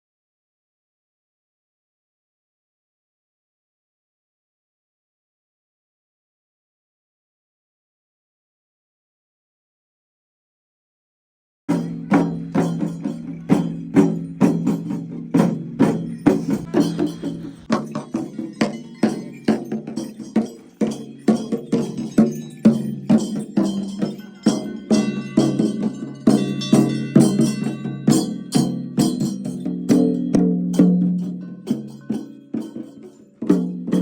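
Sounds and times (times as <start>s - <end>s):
bell-like ringing tones: 11.7s - 34.0s
sharp ringing percussion strikes: 11.7s - 34.0s.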